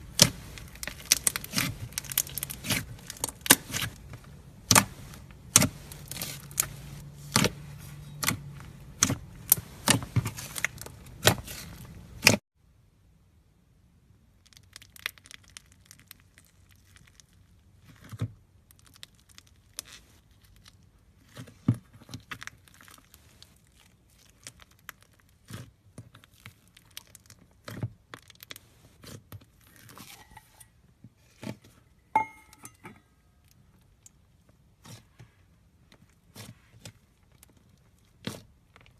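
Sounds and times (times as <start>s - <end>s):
slime crackling when squeezed: 0.0s - 7.5s, 14.4s - 17.6s.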